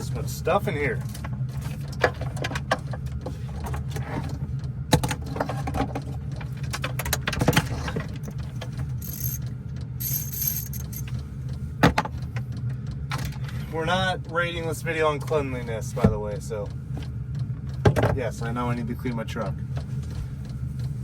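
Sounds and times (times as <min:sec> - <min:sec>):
diesel heater humming: 0:00.0 - 0:21.0
gear clattering and rattling: 0:06.7 - 0:09.4, 0:10.0 - 0:11.2.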